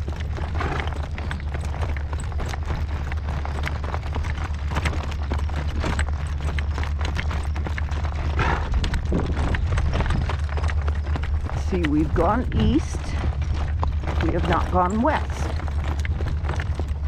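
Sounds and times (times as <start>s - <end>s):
horse hoofbeats clip-clopping: 0.0s - 17.0s
wind on microphone: 8.4s - 10.8s.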